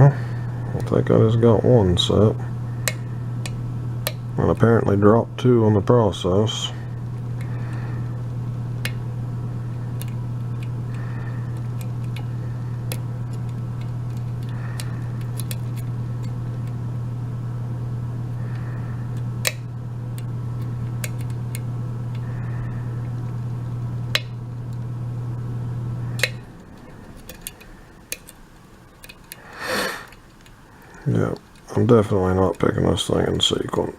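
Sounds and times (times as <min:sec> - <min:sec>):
steady low hum: 0:00.0 - 0:33.9
lock picks clicking: 0:09.8 - 0:16.8, 0:20.2 - 0:22.3, 0:26.2 - 0:30.6.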